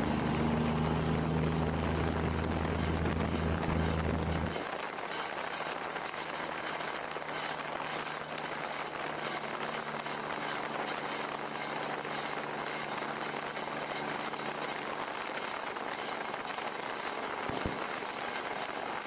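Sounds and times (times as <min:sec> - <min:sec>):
vehicle engine humming: 0:00.0 - 0:04.6.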